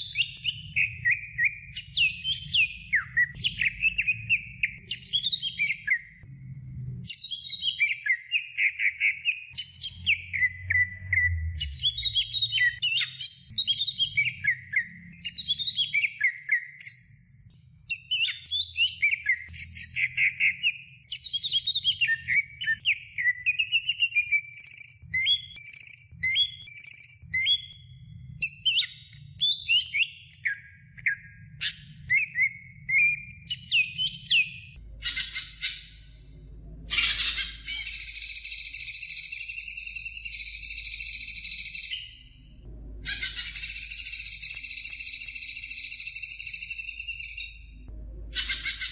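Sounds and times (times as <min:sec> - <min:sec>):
bird singing whistled trills: 0:00.0 - 0:06.2, 0:07.0 - 0:17.3, 0:17.9 - 0:36.2, 0:36.9 - 0:48.9
low background rumble: 0:05.6 - 0:07.1, 0:34.6 - 0:38.8, 0:42.0 - 0:45.7, 0:47.5 - 0:48.9.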